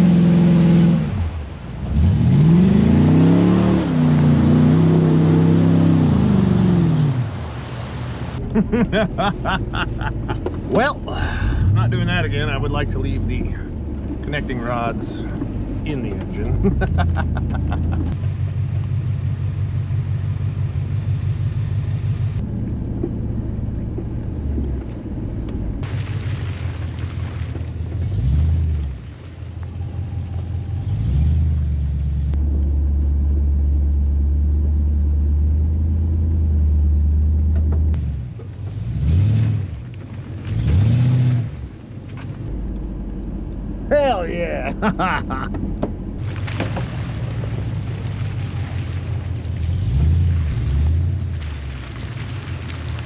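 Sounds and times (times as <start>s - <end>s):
vehicle engine revving: 0.0s - 7.6s, 8.4s - 53.0s.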